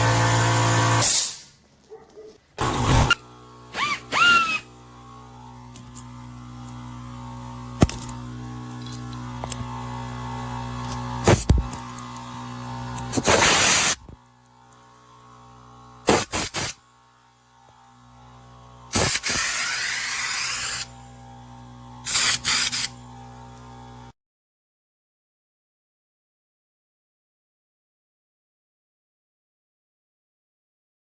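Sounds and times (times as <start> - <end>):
air compressor humming: 2.5 - 24.1
hissing air bursts: 13.1 - 14.0, 16.1 - 16.8, 18.9 - 20.9, 22.1 - 22.9.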